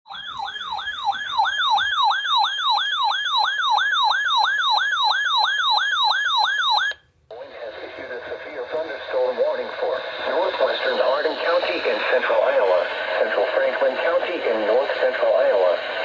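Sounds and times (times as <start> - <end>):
weather radio siren alarm: 0.1 - 7.0
faint radio broadcast: 7.3 - 16.0.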